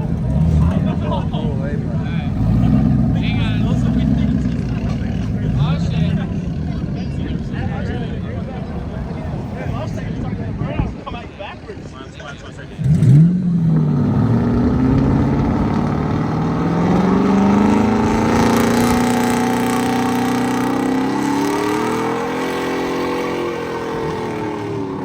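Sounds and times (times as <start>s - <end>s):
vehicle engine accelerating: 0.0s - 10.8s, 12.7s - 25.0s.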